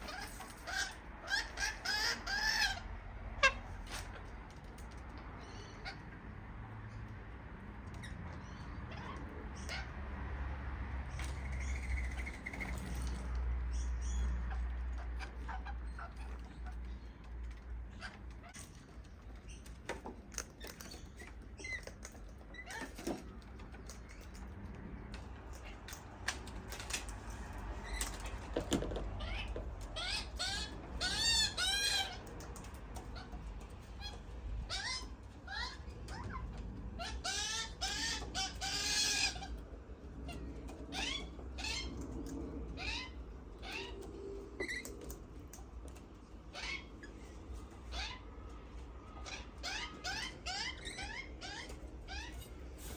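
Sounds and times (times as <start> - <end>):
birds chirping and squeaking: 0.0 - 52.9.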